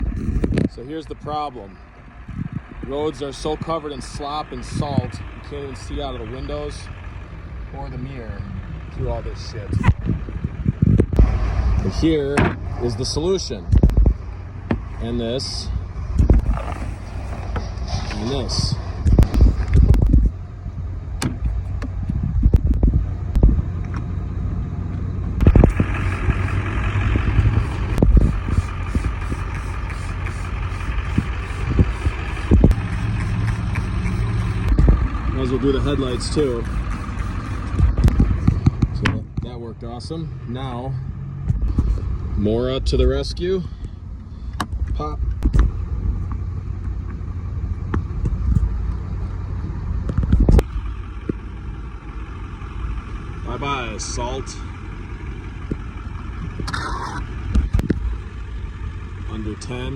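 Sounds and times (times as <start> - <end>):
truck engine idling: 0.0 - 59.9
sharp clicks: 31.6 - 35.0.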